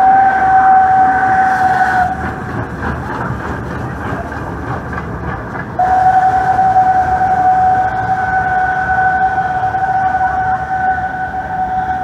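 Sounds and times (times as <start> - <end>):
steam locomotive whistle: 0.0 - 2.4, 5.8 - 12.0
train coaches rumbling over rails: 0.0 - 12.0.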